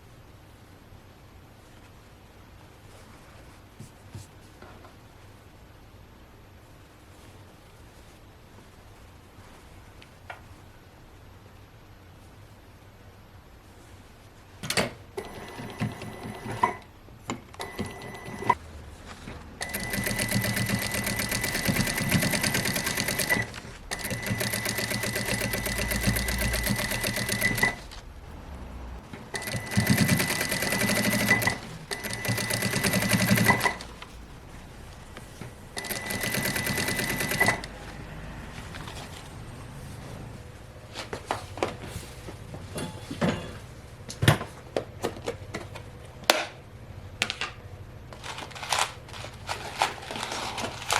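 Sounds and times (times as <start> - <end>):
sewing machine clicks: 19.6 - 27.8, 29.3 - 33.8, 35.8 - 37.7
sewing machine stitching: 19.6 - 27.9, 29.2 - 33.9, 35.8 - 37.8.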